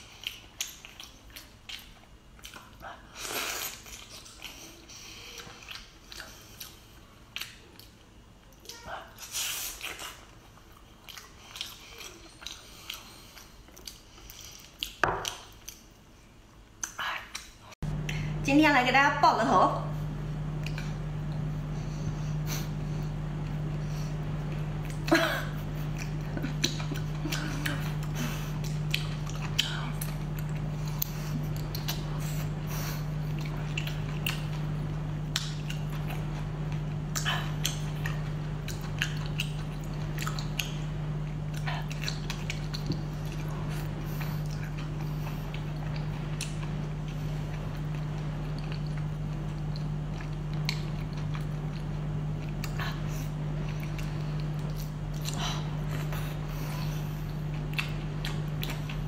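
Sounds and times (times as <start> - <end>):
person chewing wetly: 0.0 - 16.0, 20.1 - 59.0
steady low hum: 0.0 - 59.0.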